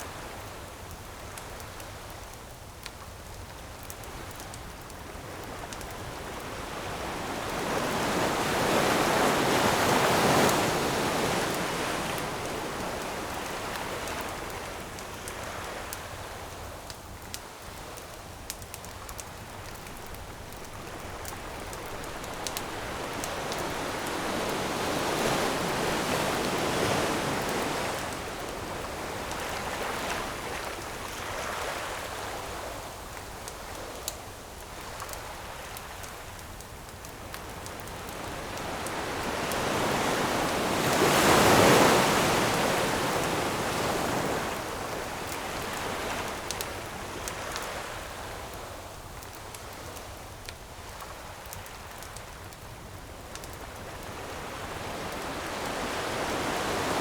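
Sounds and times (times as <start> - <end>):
campfire wood crackling: 0.0 - 57.0
ocean waves breaking ashore: 5.2 - 16.0, 19.2 - 32.6, 37.8 - 48.6, 53.8 - 57.0.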